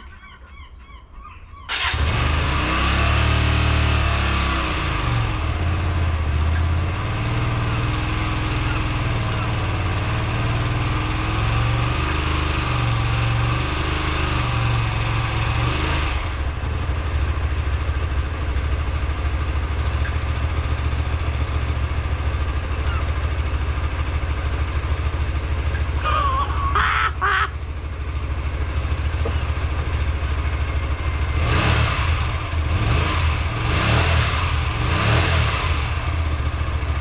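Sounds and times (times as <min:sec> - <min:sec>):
motorcycle engine idling: 0:04.0 - 0:13.6, 0:16.2 - 0:33.6, 0:35.8 - 0:37.0.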